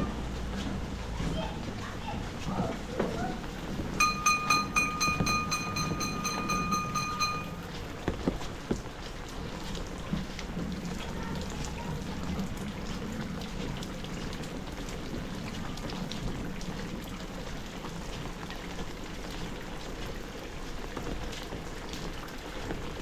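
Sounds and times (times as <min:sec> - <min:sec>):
heavy rain hitting an umbrella: 0:00.0 - 0:23.0.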